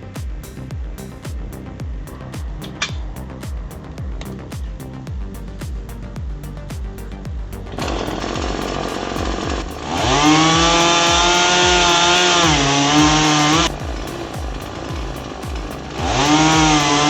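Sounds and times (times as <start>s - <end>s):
background music with steady beat: 0.0s - 17.0s
chainsaw revving and cutting: 7.8s - 17.0s.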